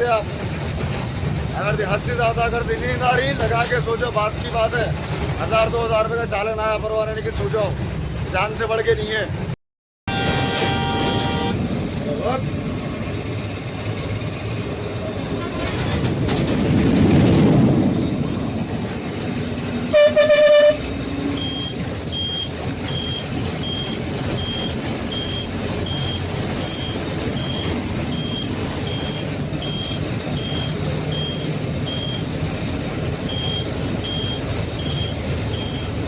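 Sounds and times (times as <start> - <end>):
truck engine and road noise: 0.0 - 36.0
truck horn blast: 10.1 - 11.7, 15.3 - 15.9, 19.9 - 21.0
high electronic beeps: 21.4 - 32.3, 33.2 - 36.0.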